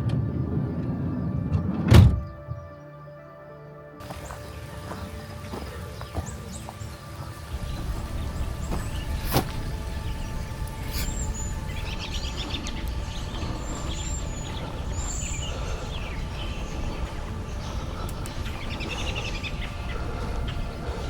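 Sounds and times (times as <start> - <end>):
songbirds whistling: 4.0 - 21.0
steady low rumble: 4.0 - 21.0
bird chattering trills: 7.5 - 21.0.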